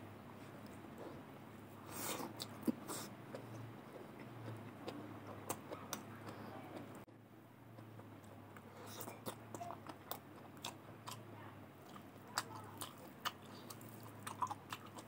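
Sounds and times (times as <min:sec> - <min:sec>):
steady low hum: 0:00.0 - 0:15.0
wet chewing and mouth smacks: 0:11.8 - 0:15.0.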